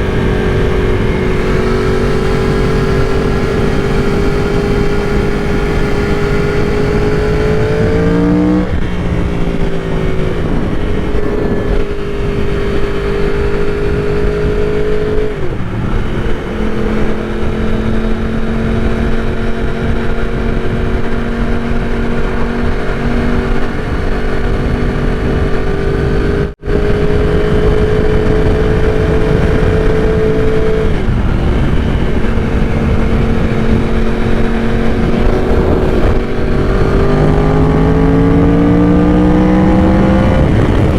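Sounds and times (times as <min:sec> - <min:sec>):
motorcycle engine high revs: 0:00.0 - 0:40.9
wind rush on microphone: 0:00.0 - 0:40.9.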